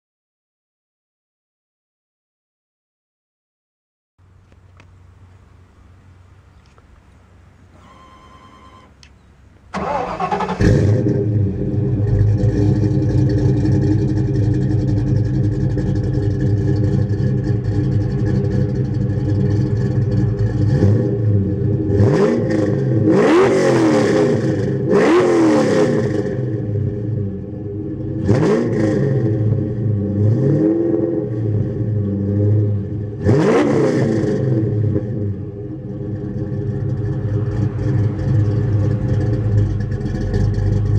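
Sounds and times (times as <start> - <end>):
car engine starting and idling: 4.2 - 40.9
engine revving: 9.7 - 40.9.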